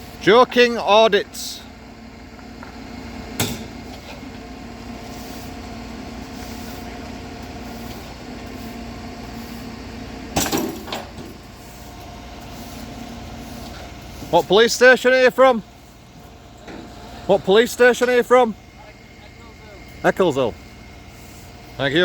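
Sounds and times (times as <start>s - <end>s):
vehicle engine idling: 0.0s - 22.0s
engine knocks: 10.2s - 14.6s.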